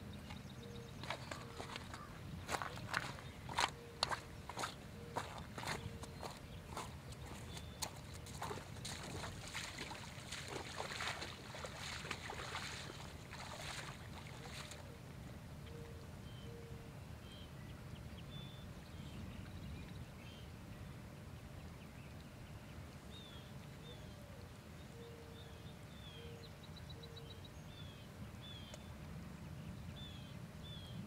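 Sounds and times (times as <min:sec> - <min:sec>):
birds chirping and trilling: 0:00.0 - 0:14.8.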